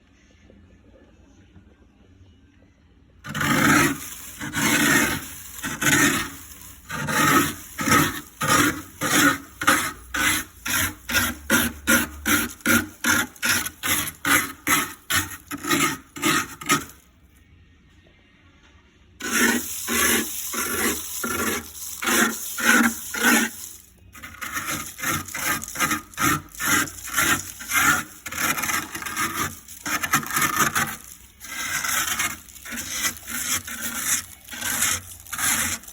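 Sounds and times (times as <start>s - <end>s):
ice being scraped: 3.3s - 17.0s, 19.2s - 35.9s.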